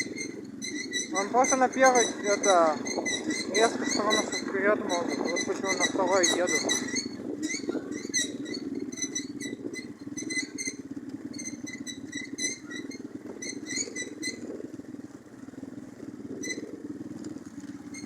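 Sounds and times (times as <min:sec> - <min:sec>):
short high squeaks: 0:00.0 - 0:14.4
moped engine running: 0:00.0 - 0:18.0.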